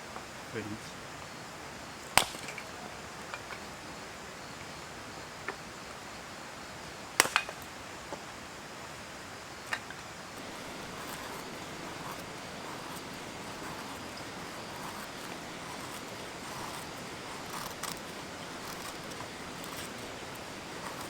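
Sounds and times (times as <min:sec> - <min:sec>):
steady low hiss: 0:05.7 - 0:21.0.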